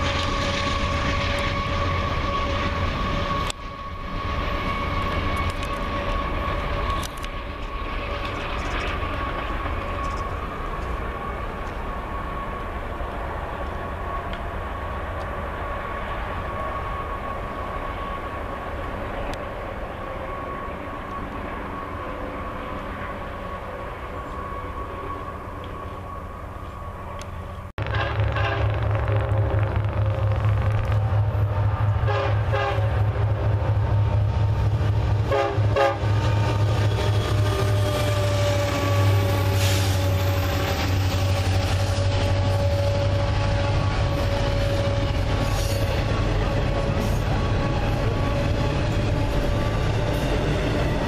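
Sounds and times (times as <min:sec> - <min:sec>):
distant freight train rumble: 0:00.0 - 0:51.0
locomotive horn blasts: 0:27.8 - 0:29.2, 0:32.0 - 0:33.2, 0:35.2 - 0:40.8, 0:41.7 - 0:46.0.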